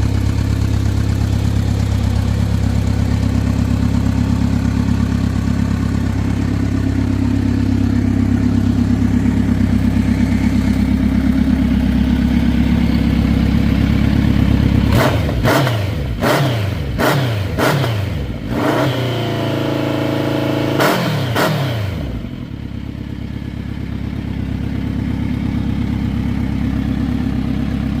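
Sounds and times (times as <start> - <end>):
motorcycle engine idling and revving: 0.0 - 28.0.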